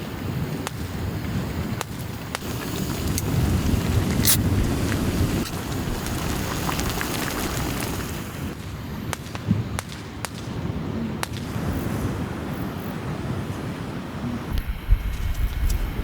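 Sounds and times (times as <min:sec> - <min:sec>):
rain: 0:00.0 - 0:09.1
wood fire crackling: 0:00.0 - 0:10.6
fire popping: 0:00.0 - 0:12.2
wind: 0:00.0 - 0:16.0.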